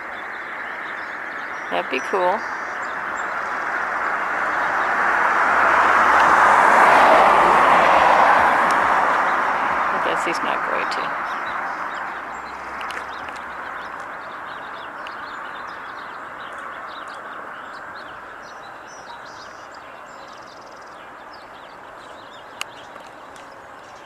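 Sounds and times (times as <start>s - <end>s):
small birds chirping: 0.0s - 24.0s
rushing background noise: 1.4s - 16.3s.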